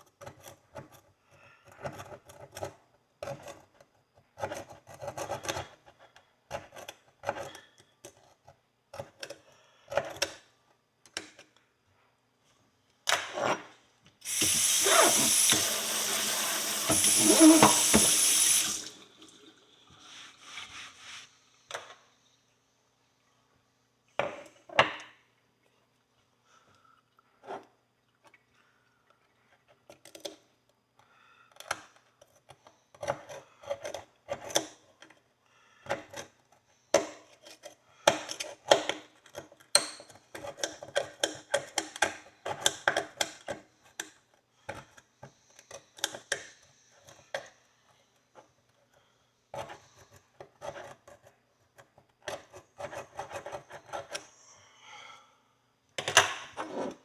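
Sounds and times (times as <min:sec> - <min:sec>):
horseshoe being scrubbed: 0:14.3 - 0:18.9.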